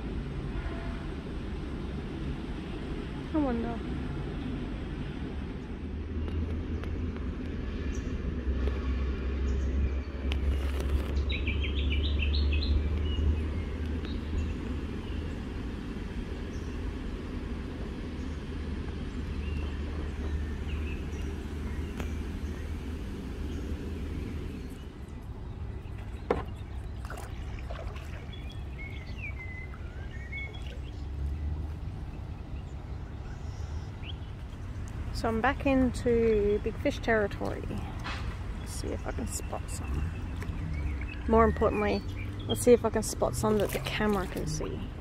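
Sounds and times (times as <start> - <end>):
steady low rumble: 0.0 - 45.0
small birds chirping: 9.4 - 45.0.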